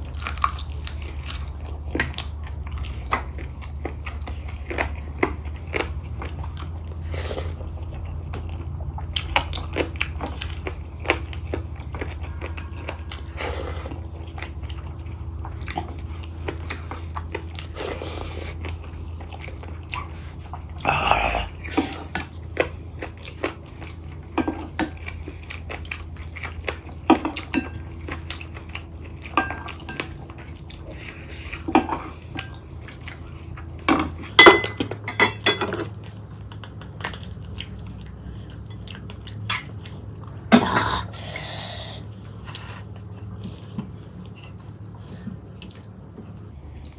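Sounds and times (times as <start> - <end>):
chewing and mouth smacks: 0.0 - 35.1, 35.7 - 40.8, 42.0 - 46.9
steady low hum: 0.0 - 46.9
plates and cutlery clinking: 33.9 - 35.9.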